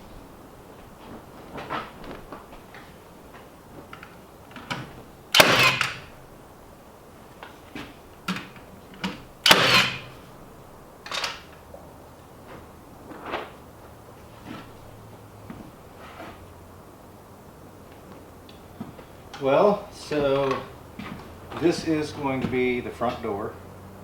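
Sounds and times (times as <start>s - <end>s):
knocks and clatters of building work: 0.9s - 6.1s, 7.4s - 10.2s.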